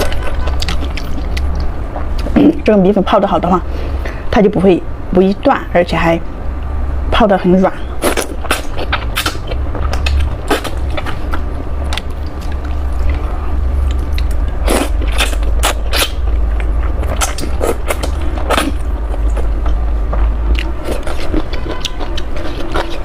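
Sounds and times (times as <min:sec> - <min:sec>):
person chewing noodles: 0:00.0 - 0:02.4, 0:08.0 - 0:23.0
steady low hum: 0:00.0 - 0:23.0.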